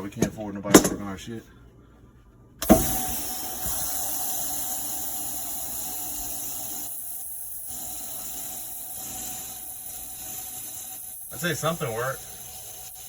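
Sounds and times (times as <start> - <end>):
gas hissing through a hose: 2.6 - 13.0.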